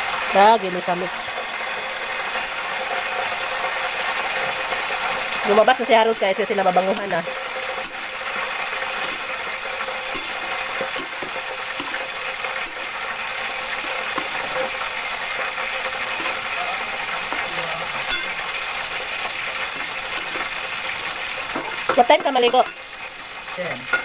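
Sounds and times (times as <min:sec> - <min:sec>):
food sizzling in a pan: 0:00.0 - 0:24.0
utensil clicking against pan: 0:06.1 - 0:08.1, 0:09.0 - 0:09.3, 0:10.1 - 0:12.8, 0:13.7 - 0:14.8, 0:15.8 - 0:16.6, 0:19.7 - 0:20.6, 0:21.5 - 0:22.9.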